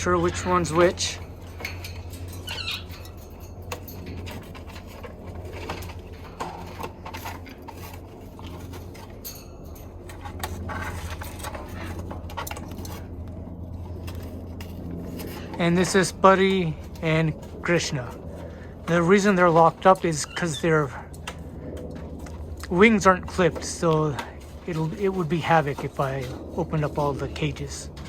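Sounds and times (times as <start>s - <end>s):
steady low hum: 0.0s - 28.0s
small clicks and rustles: 0.2s - 28.0s
parrot chirps: 2.4s - 3.0s.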